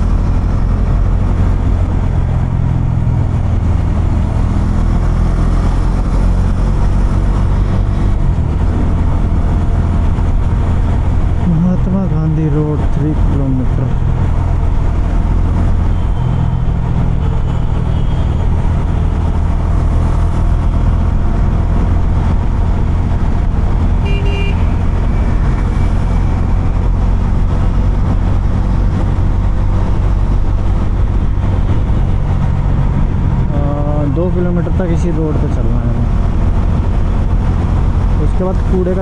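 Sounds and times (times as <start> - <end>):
motorcycle engine running: 13.0 - 39.0
vehicle horn beep: 24.0 - 24.9.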